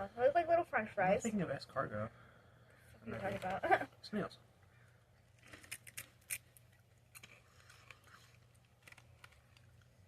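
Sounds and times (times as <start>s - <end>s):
crunching of chips being chewed: 5.3s - 10.0s.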